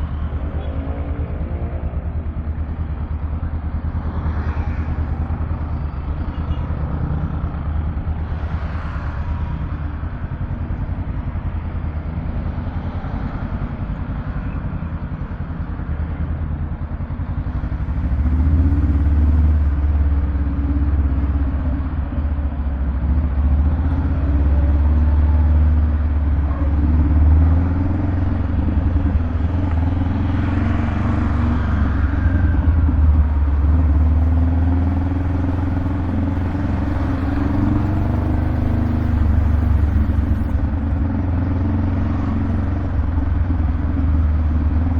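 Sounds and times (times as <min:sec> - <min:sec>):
motorcycle engine rumbling: 0:13.5 - 0:44.9.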